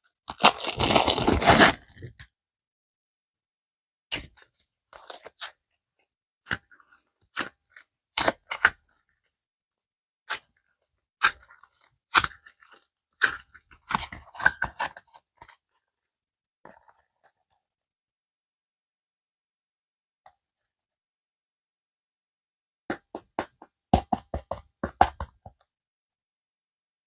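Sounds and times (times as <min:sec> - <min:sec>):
plastic packaging crackling: 0:00.3 - 0:01.8.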